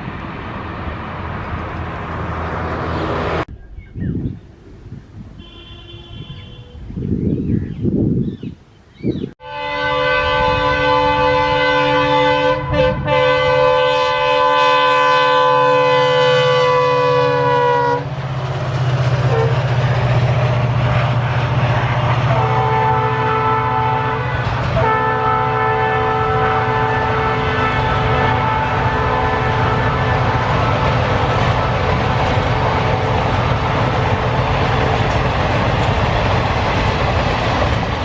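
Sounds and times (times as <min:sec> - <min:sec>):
locomotive horn blasts: 0:05.4 - 0:06.9, 0:09.4 - 0:18.1, 0:19.2 - 0:19.7, 0:22.2 - 0:31.0.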